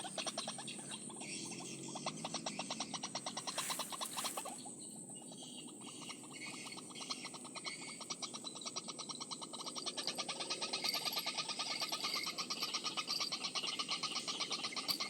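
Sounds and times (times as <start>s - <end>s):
pulsed croaking animal calls: 0.0s - 4.6s.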